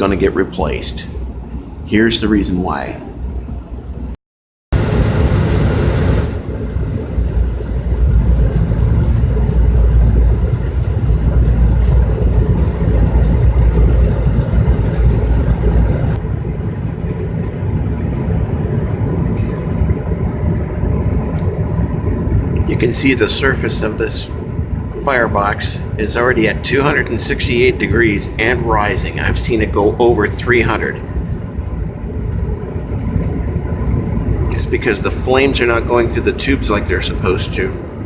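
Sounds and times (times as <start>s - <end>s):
gas furnace rumbling: 0.0s - 38.0s.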